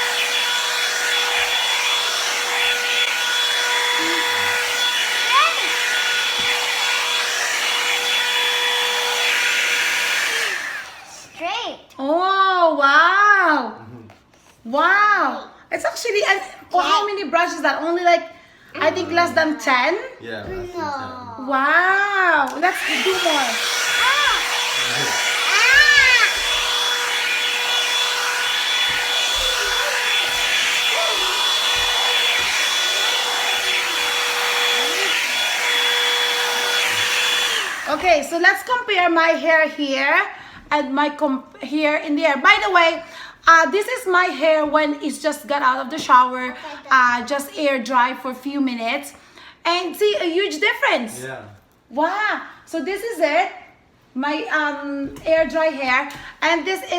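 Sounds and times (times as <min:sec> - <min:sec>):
hot-air dryer brush running: 0:00.0 - 0:11.6, 0:18.8 - 0:19.8, 0:21.9 - 0:40.6.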